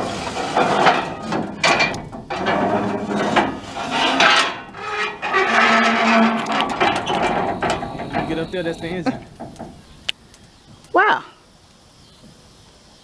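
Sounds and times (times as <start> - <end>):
low metal screech: 0.0 - 10.0
metal ladder scraping and knocking: 0.0 - 10.1.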